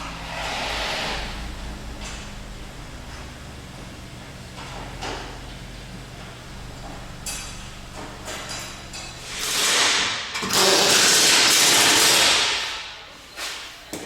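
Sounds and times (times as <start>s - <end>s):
low steady hum: 0.0s - 10.4s
loud rushing hiss blasts: 0.2s - 1.5s, 9.2s - 12.8s.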